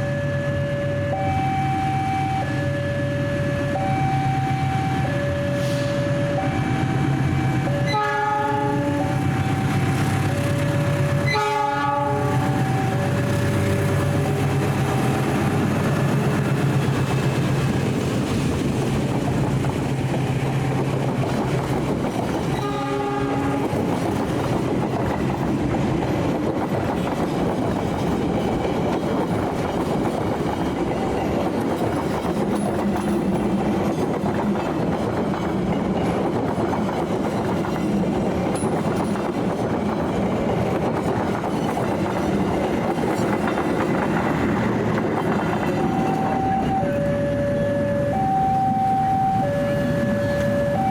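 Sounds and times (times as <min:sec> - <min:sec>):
train horn blast: 0:03.8 - 0:10.0, 0:11.2 - 0:13.1, 0:22.6 - 0:23.9
train wheels clattering over rails: 0:09.2 - 0:46.7.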